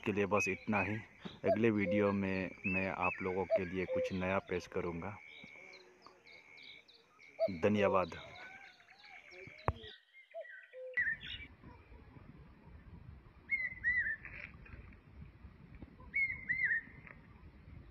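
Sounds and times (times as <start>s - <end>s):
outdoor background hiss: 0.0s - 8.3s
small bird chirping: 0.0s - 12.0s, 13.5s - 14.6s, 16.0s - 17.9s.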